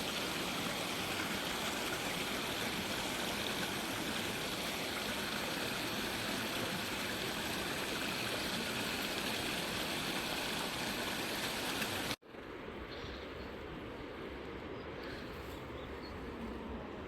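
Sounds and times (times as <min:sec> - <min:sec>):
mountain stream rushing: 0:00.0 - 0:12.2
quiet outdoor ambience: 0:00.0 - 0:17.0.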